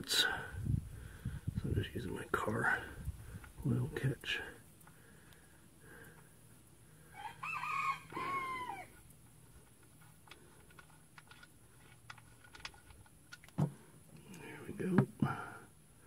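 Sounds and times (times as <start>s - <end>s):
rooster crowing: 7.1s - 9.0s.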